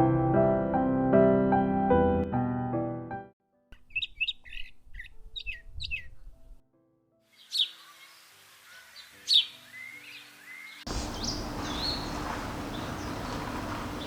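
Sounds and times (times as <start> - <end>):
small birds chirping: 3.8 - 6.3, 7.3 - 14.0
faint outdoor hiss: 7.3 - 14.0.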